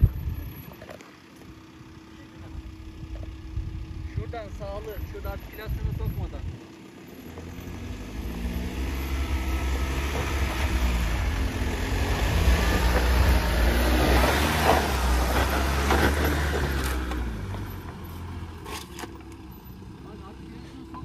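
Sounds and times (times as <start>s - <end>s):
engine pulling under load: 4.7s - 21.0s.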